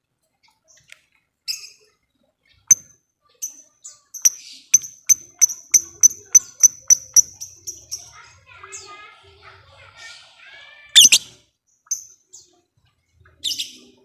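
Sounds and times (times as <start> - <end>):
lovebird chirping: 2.7 - 8.1, 11.0 - 11.3.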